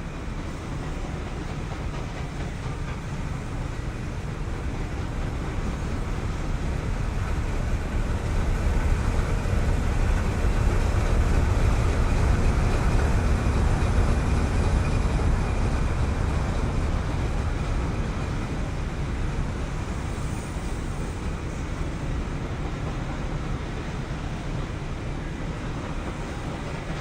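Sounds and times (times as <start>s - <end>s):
freight train rumbling past: 0.0s - 27.0s.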